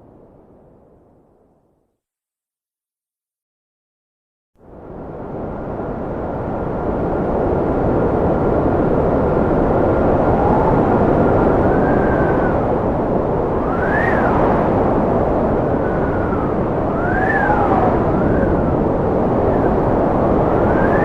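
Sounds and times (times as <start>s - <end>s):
strong wind rushing: 4.7s - 21.0s
wind whistling: 4.9s - 21.0s.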